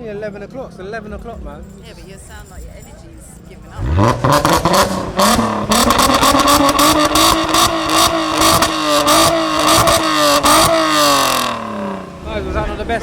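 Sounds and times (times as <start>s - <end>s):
car engine revving: 3.6s - 13.0s
sharp exhaust cracks: 3.6s - 13.0s.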